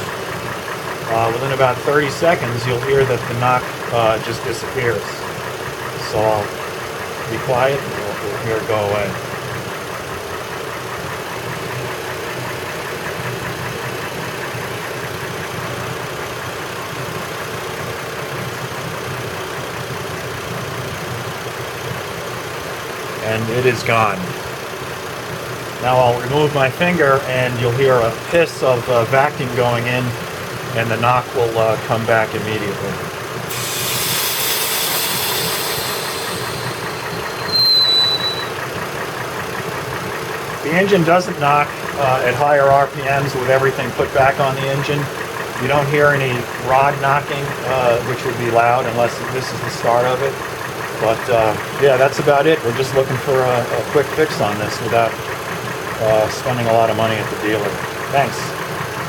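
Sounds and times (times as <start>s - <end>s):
car engine idling with knock: 0.0s - 59.0s
vacuum hiss: 33.5s - 37.5s
high whistle: 33.5s - 38.7s.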